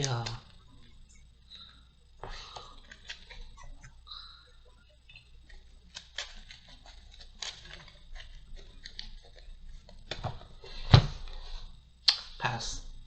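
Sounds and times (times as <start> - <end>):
trading cards clicking and rustling: 2.5 - 4.0, 5.4 - 10.4.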